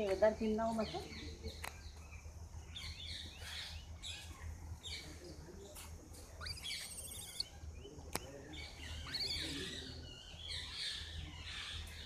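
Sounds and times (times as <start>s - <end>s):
birds chirping: 0.0s - 12.0s
bird trill: 6.4s - 7.9s, 8.6s - 12.0s.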